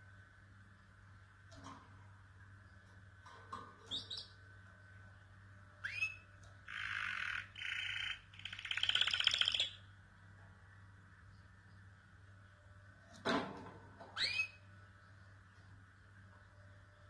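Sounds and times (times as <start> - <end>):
canary singing: 3.9 - 4.4, 5.8 - 9.9, 14.2 - 14.7.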